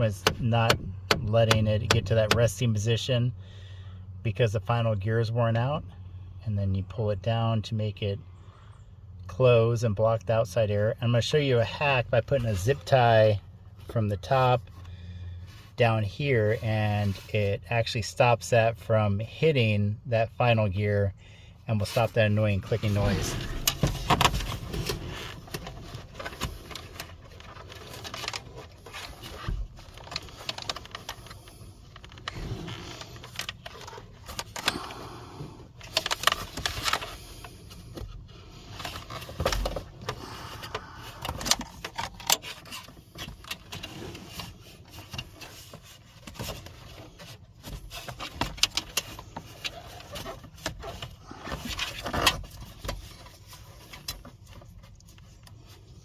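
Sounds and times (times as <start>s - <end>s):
plastic clicks and scrapes: 22.8s - 35.0s, 35.8s - 55.8s.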